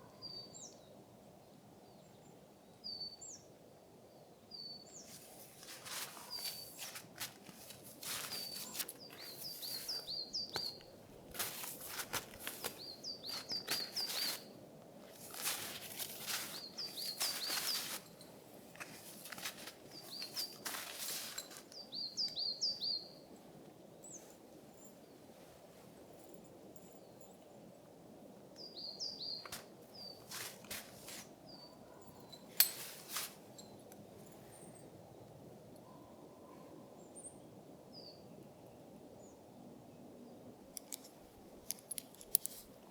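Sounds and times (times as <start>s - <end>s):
songbird chirping: 0.0s - 25.5s, 28.5s - 41.1s
small bird chirping: 4.5s - 11.0s, 12.4s - 14.6s, 15.4s - 18.2s, 18.9s - 23.2s, 28.6s - 30.4s
crunching rustling noise: 5.0s - 22.4s, 29.3s - 31.5s, 32.1s - 34.4s, 40.8s - 42.9s.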